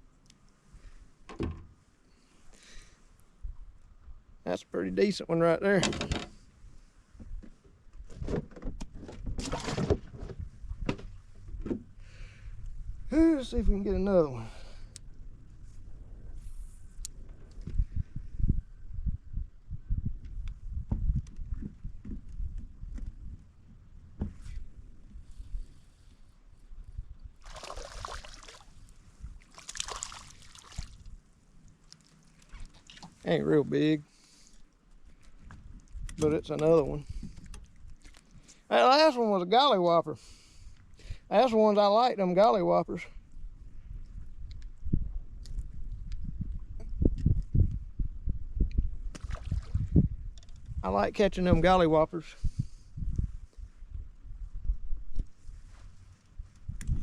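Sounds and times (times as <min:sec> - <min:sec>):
knocks and clicks against hull: 0:05.8 - 0:06.4, 0:07.2 - 0:11.9, 0:20.2 - 0:23.2
fish splashing at the surface: 0:27.4 - 0:28.7, 0:29.4 - 0:31.1.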